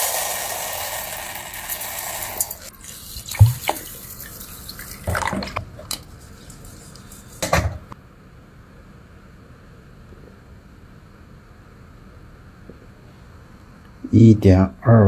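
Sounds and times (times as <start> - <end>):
water splashing: 0.0 - 8.0.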